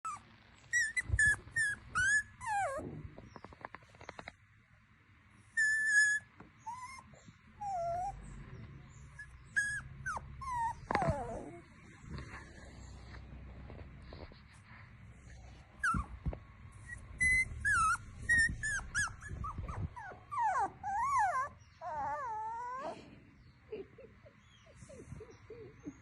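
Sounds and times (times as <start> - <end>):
puppy whimpering and squealing: 0.0 - 3.4, 5.6 - 11.7, 15.8 - 23.0, 23.7 - 26.0.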